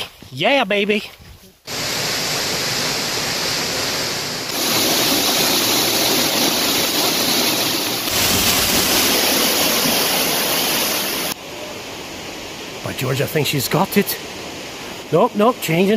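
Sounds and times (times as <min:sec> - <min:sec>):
waterfall rushing: 0:01.7 - 0:15.9.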